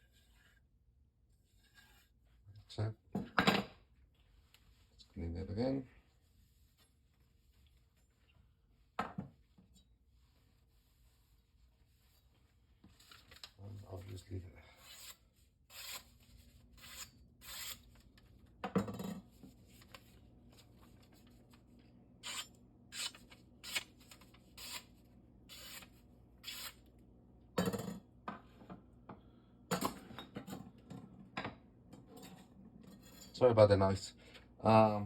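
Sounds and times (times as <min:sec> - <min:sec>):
scraping on a whetstone: 0:01.5 - 0:02.3, 0:14.8 - 0:17.9.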